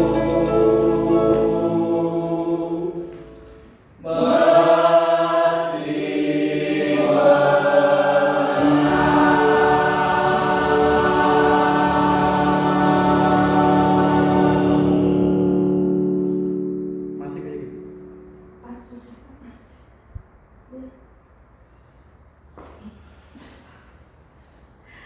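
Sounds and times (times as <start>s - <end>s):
choir singing chords: 0.0s - 17.2s.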